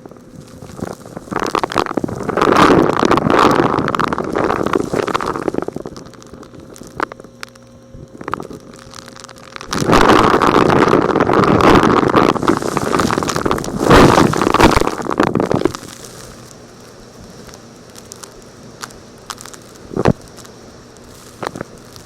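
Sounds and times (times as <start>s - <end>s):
vacuum cleaner sucking up rocks: 0.0s - 22.0s.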